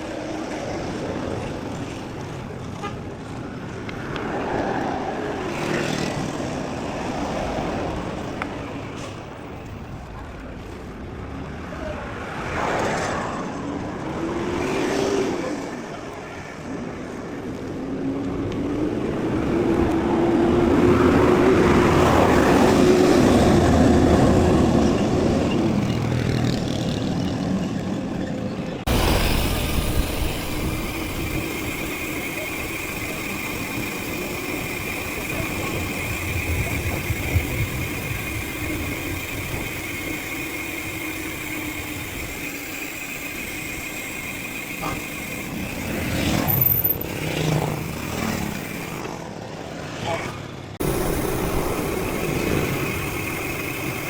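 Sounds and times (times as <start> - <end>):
bike tyres rolling over trail: 28.9 - 49.6, 50.8 - 54.0.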